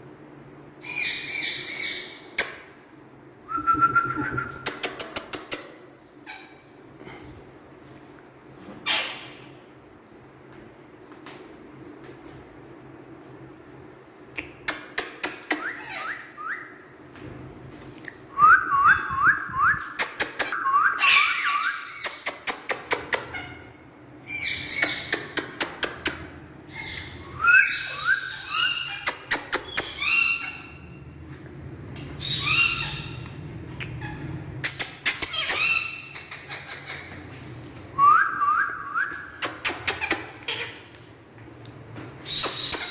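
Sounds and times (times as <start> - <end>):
parrot chirping: 20.4 - 22.2, 26.7 - 31.0, 32.1 - 33.4, 34.0 - 37.2, 42.2 - 42.9.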